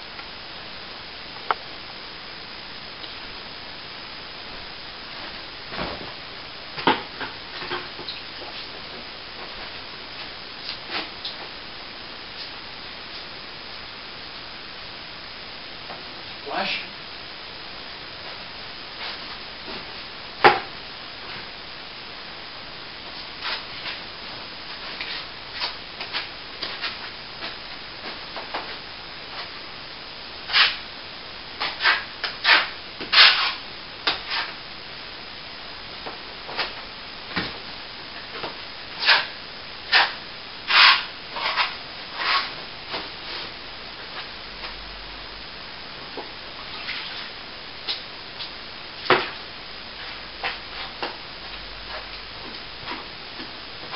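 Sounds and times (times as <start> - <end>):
tool scraping plaster: 39.9 - 42.5.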